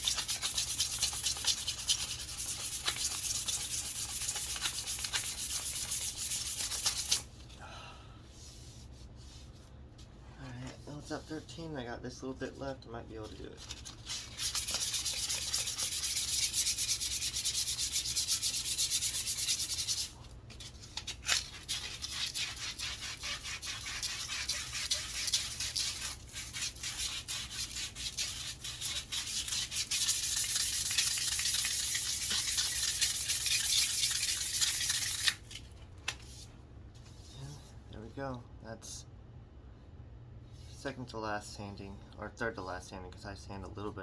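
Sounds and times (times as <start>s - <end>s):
sandpaper rubbing on wood: 0.0s - 7.2s, 13.8s - 20.2s, 21.3s - 35.4s.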